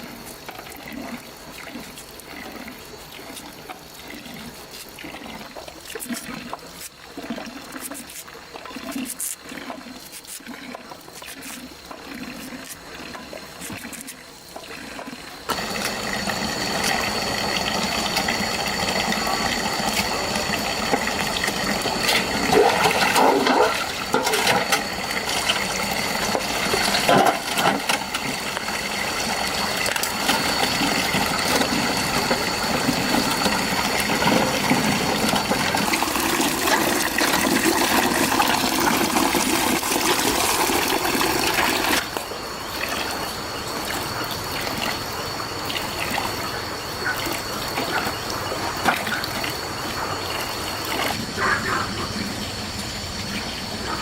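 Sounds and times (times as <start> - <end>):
water running in a stream: 0.0 - 54.0
water splashing: 0.6 - 42.2.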